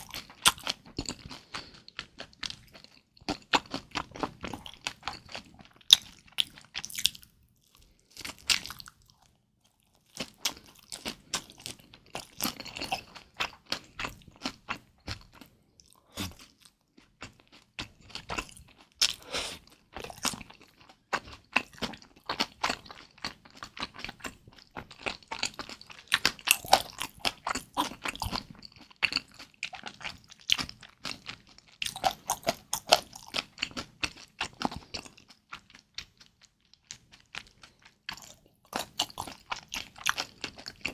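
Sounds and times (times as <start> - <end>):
crunchy chewing and biting: 0.0 - 9.3, 10.0 - 40.9.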